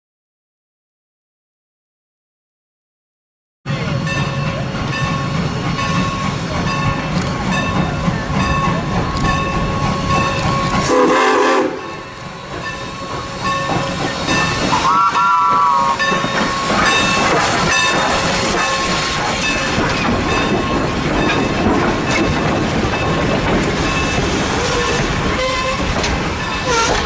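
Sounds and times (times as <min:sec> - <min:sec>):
train rolling on rails: 0:03.7 - 0:27.0
train whistle blasts: 0:10.6 - 0:12.1, 0:14.7 - 0:17.4, 0:23.8 - 0:25.9, 0:26.6 - 0:27.0.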